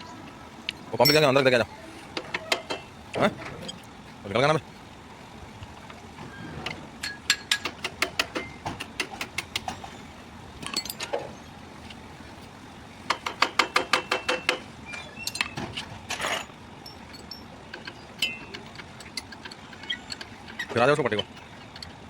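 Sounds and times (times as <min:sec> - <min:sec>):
ratchet spanner clicking: 0:16.8 - 0:22.0.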